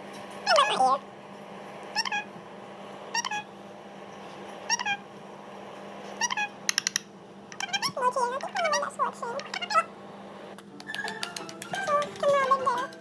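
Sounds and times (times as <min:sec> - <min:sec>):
low electrical hum: 0:00.0 - 0:13.0
high-pitched animal calls: 0:02.0 - 0:02.3, 0:03.1 - 0:03.5, 0:06.2 - 0:06.6.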